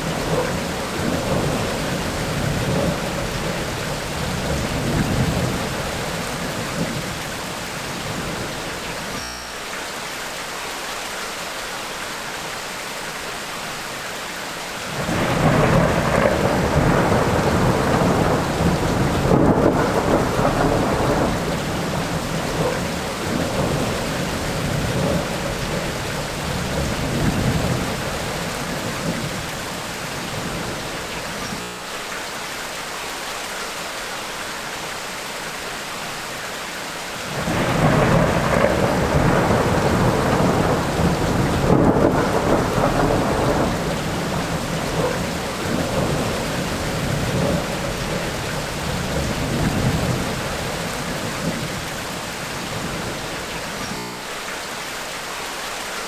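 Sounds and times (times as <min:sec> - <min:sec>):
rolling thunder: 0:00.0 - 0:09.1, 0:14.9 - 0:31.5, 0:37.3 - 0:54.0
steady rain: 0:00.0 - 0:56.0.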